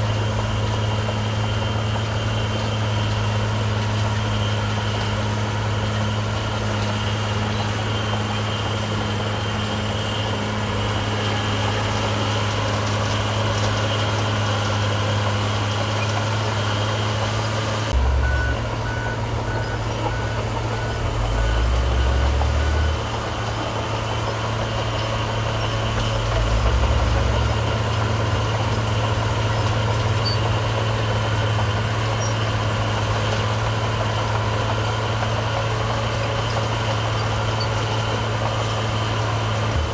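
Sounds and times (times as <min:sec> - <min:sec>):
heavy diesel engines running: 0:00.0 - 0:39.9
reversing alarm beeping: 0:17.9 - 0:28.4.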